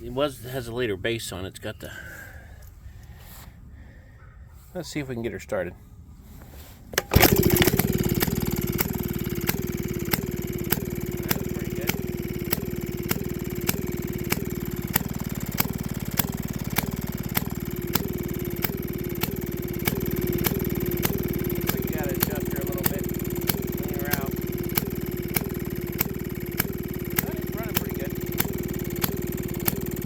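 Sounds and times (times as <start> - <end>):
sharp engine click: 7.0 - 30.0
two-stroke engine running: 7.0 - 30.0.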